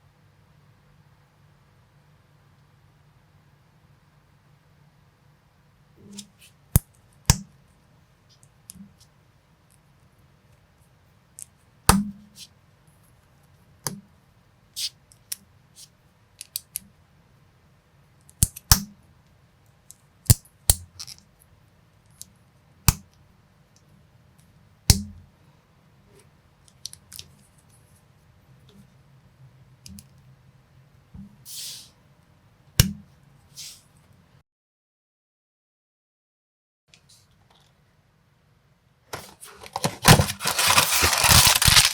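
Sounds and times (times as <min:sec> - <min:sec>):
plastic parts rustling: 0:39.1 - 0:41.9.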